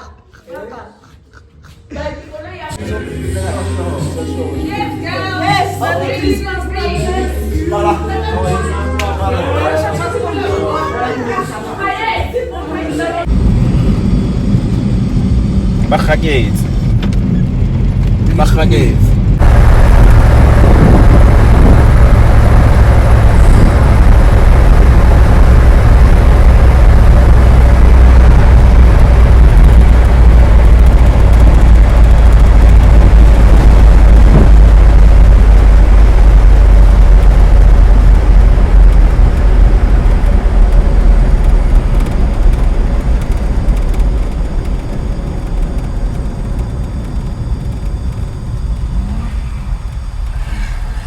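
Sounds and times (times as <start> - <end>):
vehicle rumbling on the move: 13.2 - 51.0.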